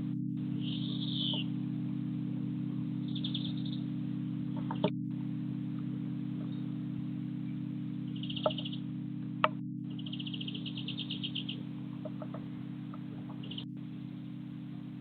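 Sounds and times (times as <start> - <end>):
steady low hum: 0.0 - 15.0
small bird trilling: 0.6 - 1.5, 3.1 - 3.8, 8.2 - 8.8, 10.0 - 12.4, 13.3 - 13.7.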